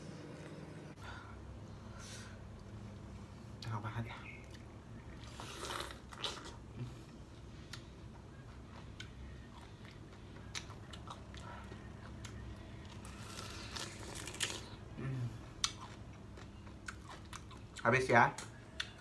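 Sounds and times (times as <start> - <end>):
biting and chewing pineapple: 7.7 - 19.0.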